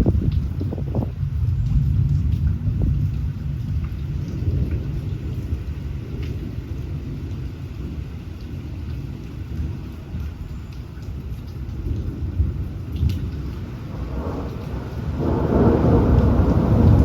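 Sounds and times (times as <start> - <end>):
rolling thunder: 0.0 - 8.0, 11.8 - 17.0
raindrop ticks: 0.0 - 17.0
steady rain: 0.0 - 17.0.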